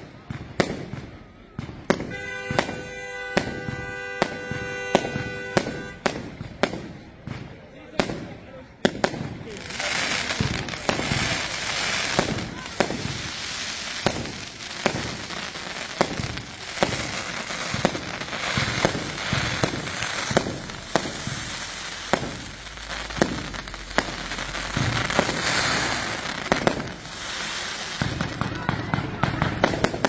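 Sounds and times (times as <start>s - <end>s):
firework bangs: 0.0s - 30.0s
rushing hiss: 16.6s - 28.4s.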